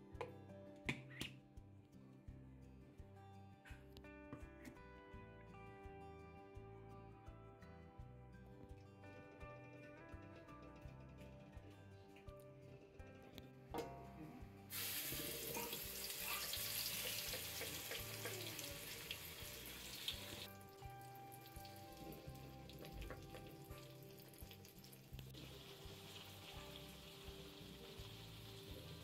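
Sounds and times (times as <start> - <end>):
chilli paste sizzling in hot oil: 14.7 - 29.0.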